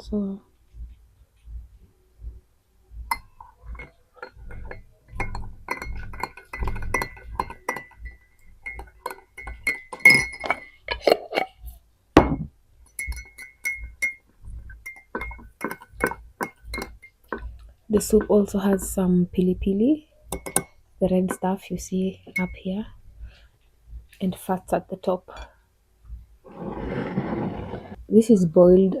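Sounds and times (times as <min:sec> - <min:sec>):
spoon clinking against a bowl: 0:03.1 - 0:11.6, 0:12.3 - 0:18.9, 0:20.3 - 0:21.5, 0:22.3 - 0:22.7.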